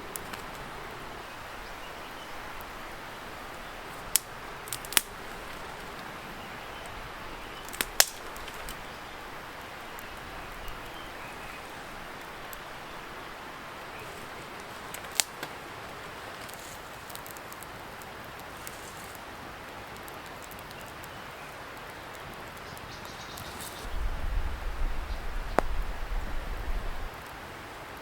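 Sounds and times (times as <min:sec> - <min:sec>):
sharp fire pops: 0:00.0 - 0:19.2
distant river hiss: 0:00.0 - 0:20.1
wood bonfire crackling: 0:00.0 - 0:28.0.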